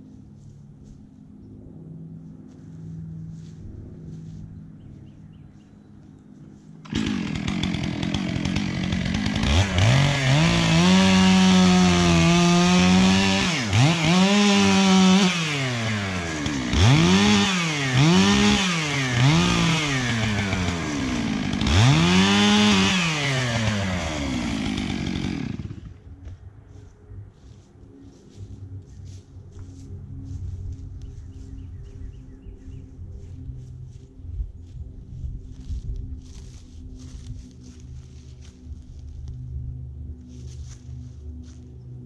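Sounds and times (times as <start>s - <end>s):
chainsaw cutting tree trunk: 6.8s - 26.4s.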